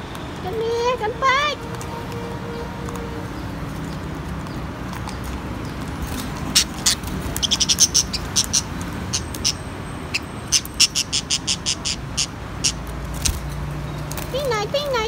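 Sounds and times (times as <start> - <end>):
budgies chirping: 3.3 - 13.5.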